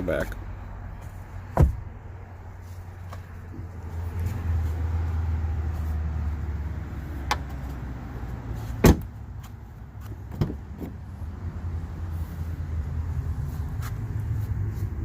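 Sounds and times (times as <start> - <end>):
low rumble inside truck cab: 0.0 - 15.0
loud thump: 1.5 - 1.9, 8.8 - 9.1.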